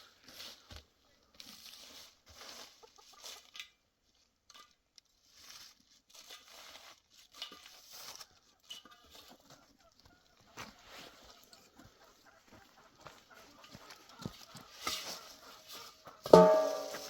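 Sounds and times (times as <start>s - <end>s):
faint rustling and crinkling: 0.0s - 17.0s
poultry clucking: 2.3s - 3.6s, 7.9s - 17.0s.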